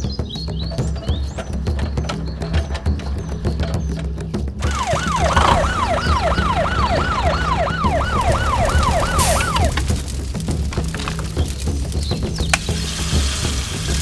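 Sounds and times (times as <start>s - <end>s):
siren sweeping up and down: 4.6s - 9.8s.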